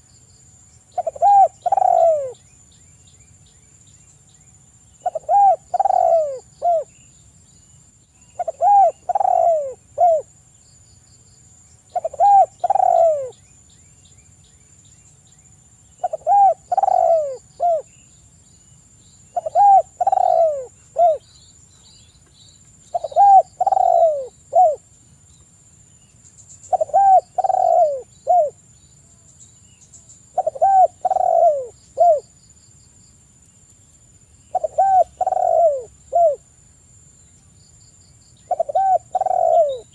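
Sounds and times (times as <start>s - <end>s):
dove cooing: 1.0s - 2.4s, 5.0s - 6.9s, 8.4s - 10.3s, 11.9s - 13.4s, 16.0s - 17.9s, 19.3s - 21.2s, 22.9s - 24.8s, 26.7s - 28.6s, 30.3s - 32.2s, 34.5s - 36.4s, 38.5s - 39.9s.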